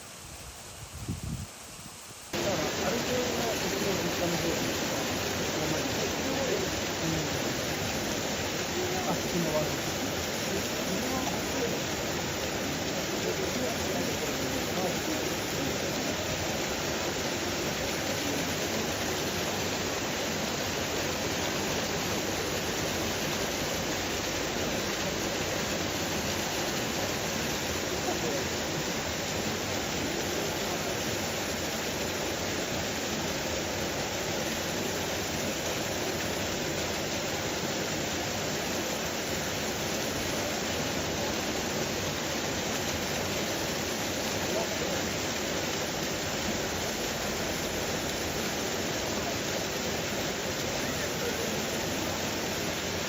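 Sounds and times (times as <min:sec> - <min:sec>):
steady rushing noise: 0:00.0 - 0:53.0
faint murmur of voices: 0:08.6 - 0:16.5, 0:50.1 - 0:52.7.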